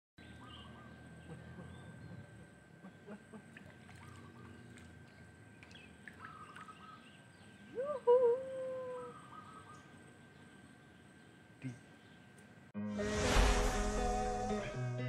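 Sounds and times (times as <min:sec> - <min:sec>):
short bird calls: 0:00.2 - 0:04.7, 0:05.7 - 0:08.1, 0:08.9 - 0:10.0
humming voice: 0:07.6 - 0:09.3.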